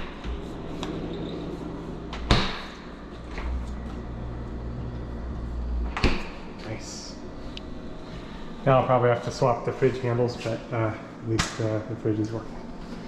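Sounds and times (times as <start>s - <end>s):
low steady hum: 0.0s - 13.0s
refrigerator door shutting: 5.8s - 6.6s.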